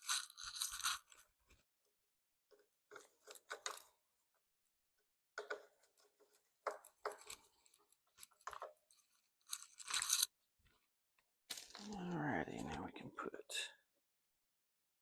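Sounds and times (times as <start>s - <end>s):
rustling and clicking handling noises: 5.4s - 12.8s.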